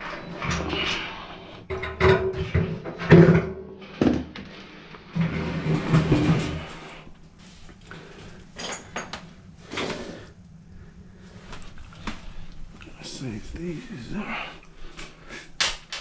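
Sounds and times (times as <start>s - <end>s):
tools knocking and clattering: 1.7s - 4.2s.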